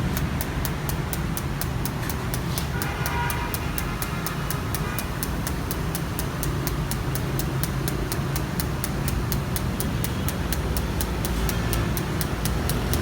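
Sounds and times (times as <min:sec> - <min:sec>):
sharp rapid ticking: 0:00.0 - 0:13.0
electrical machine hum: 0:03.5 - 0:13.0.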